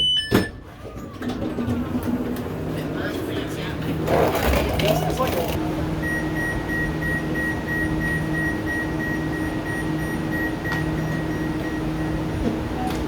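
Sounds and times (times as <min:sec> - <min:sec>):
high electronic door warning beeps: 0:00.0 - 0:00.6, 0:06.0 - 0:12.3
train low hum: 0:00.0 - 0:04.8, 0:05.4 - 0:13.0.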